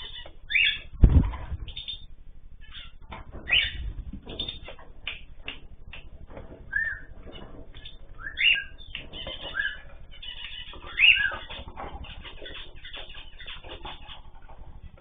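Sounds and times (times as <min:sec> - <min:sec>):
birds chirping: 0:00.0 - 0:15.0
clicking and rustling in cage: 0:03.0 - 0:15.0.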